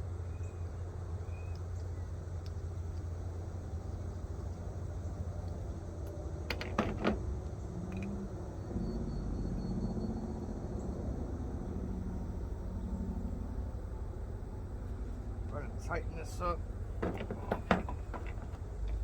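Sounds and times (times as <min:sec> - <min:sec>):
steady low rumble: 0:07.2 - 0:19.0.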